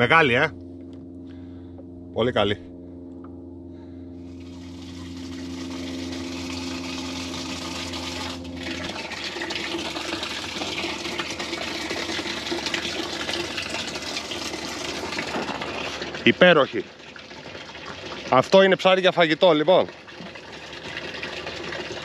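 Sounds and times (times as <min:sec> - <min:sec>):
low hum: 0:00.0 - 0:16.3
water gushing into container: 0:04.3 - 0:22.0.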